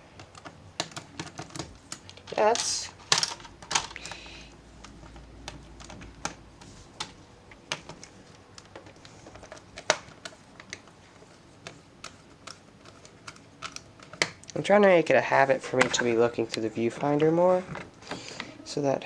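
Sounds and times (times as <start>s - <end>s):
plastic laptop parts clicking: 0.0s - 14.9s.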